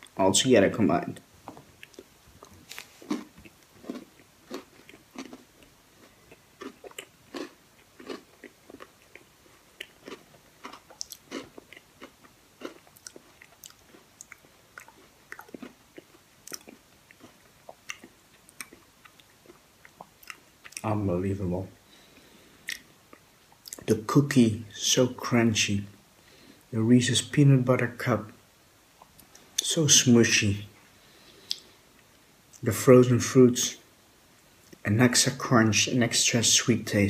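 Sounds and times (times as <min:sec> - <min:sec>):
person chewing crunchy food: 0:01.8 - 0:20.9.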